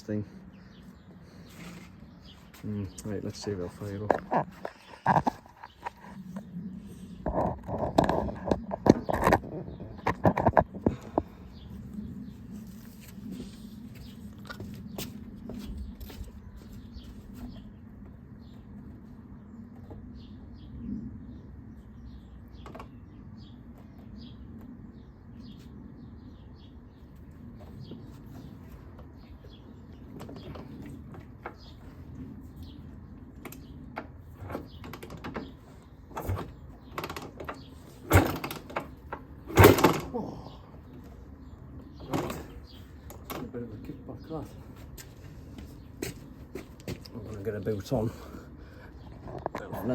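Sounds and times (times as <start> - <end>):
dirt bike kick-start attempts: 36.1 - 40.2.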